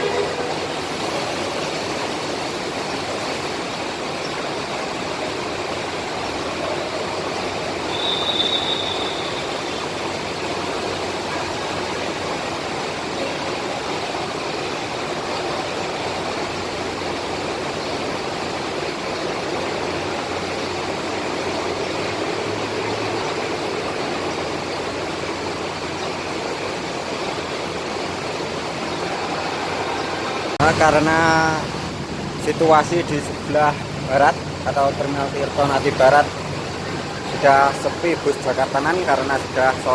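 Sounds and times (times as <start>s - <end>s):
bus engines running: 0.0s - 39.9s
heavy rain pouring: 0.0s - 39.9s
high squeal: 7.8s - 10.1s.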